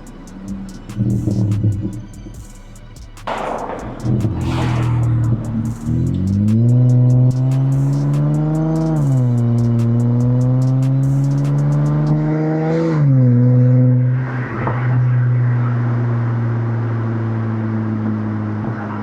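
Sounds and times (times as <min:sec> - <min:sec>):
car exhaust engine pulling: 0:00.0 - 0:19.0.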